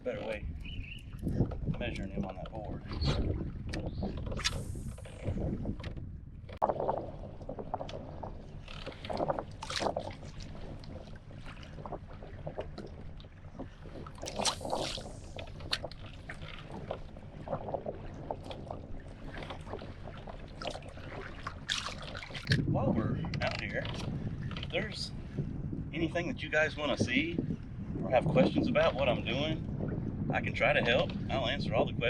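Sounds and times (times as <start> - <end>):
water lapping and splashing: 0.0 - 32.0.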